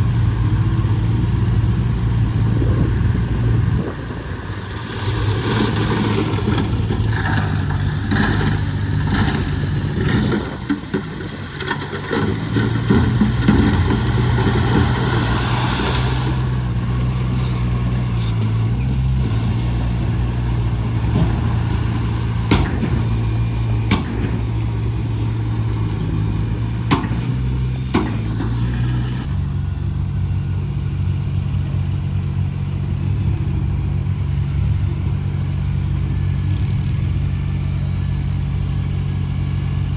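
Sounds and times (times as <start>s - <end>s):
diesel engine running under load: 0.0s - 39.9s
heavy clattering: 4.1s - 30.2s.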